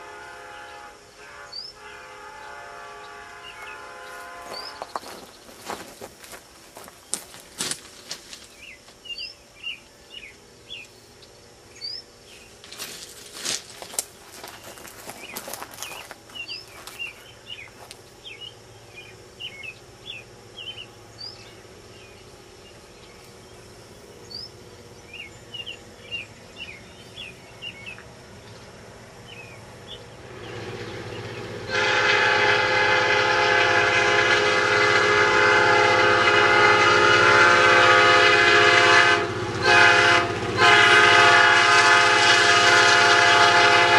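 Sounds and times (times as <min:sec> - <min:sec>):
locomotive horn chord: 0:00.0 - 0:05.3, 0:29.9 - 0:43.9
locomotive rumble: 0:00.0 - 0:43.9
small birds chirping: 0:03.4 - 0:31.5.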